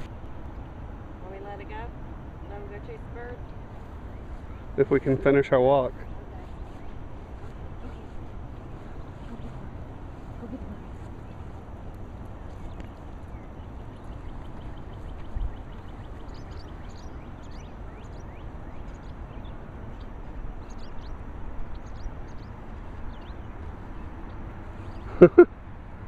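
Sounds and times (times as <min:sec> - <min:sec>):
low wind rumble: 0:00.0 - 0:26.0
bird chirps and calls: 0:12.5 - 0:24.1.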